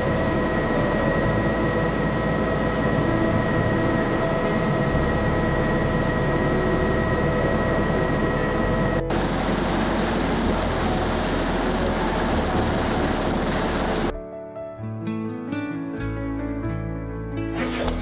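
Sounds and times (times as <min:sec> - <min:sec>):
helicopter cabin noise: 0:00.0 - 0:14.1.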